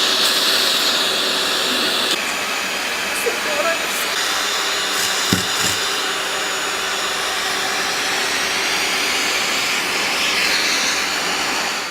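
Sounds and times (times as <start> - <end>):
short knocks: 5.0 - 5.8
vacuum cleaner running: 5.0 - 5.8.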